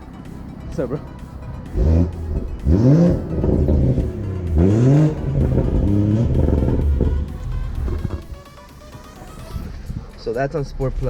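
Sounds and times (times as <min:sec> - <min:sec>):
low exhaust note: 0:00.0 - 0:08.5
car engine revving: 0:00.0 - 0:09.8.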